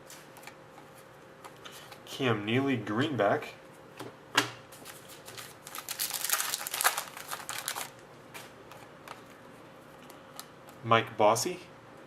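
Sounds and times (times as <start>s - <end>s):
trading cards rustling: 4.8s - 8.0s.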